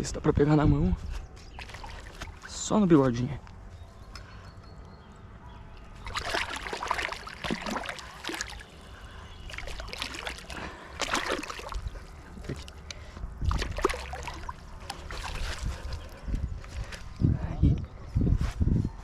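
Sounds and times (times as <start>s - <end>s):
fish splashing and thrashing in water: 1.5s - 2.6s, 5.9s - 16.9s.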